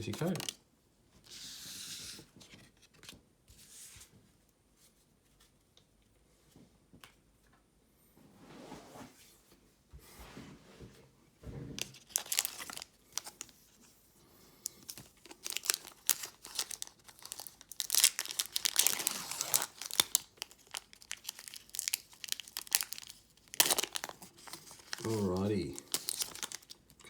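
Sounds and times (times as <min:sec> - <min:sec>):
foil wrapper crinkling and tearing: 0:00.0 - 0:00.6, 0:11.8 - 0:13.6, 0:14.6 - 0:27.0.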